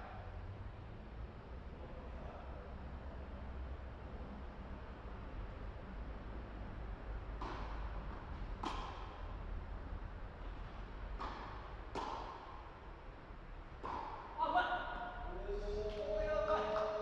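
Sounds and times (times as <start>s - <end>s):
racket hitting ball: 7.4s - 9.3s, 11.2s - 12.7s, 13.8s - 14.4s.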